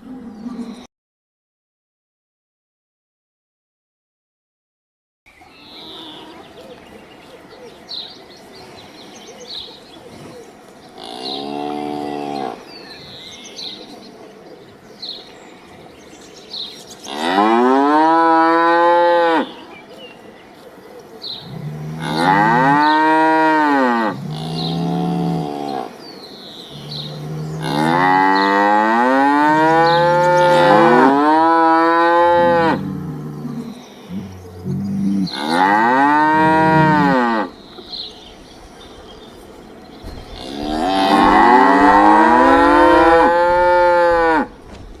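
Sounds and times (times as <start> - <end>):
cow mooing: 21.5 - 26.0, 26.7 - 37.5, 40.4 - 44.5.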